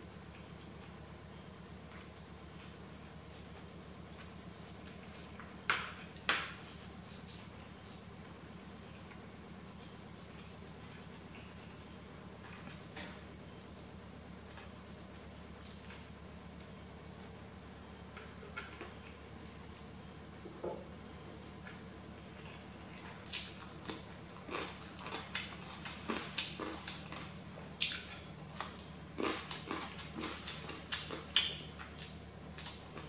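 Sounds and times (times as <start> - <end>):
crisp crunching and chewing: 23.3 - 33.0.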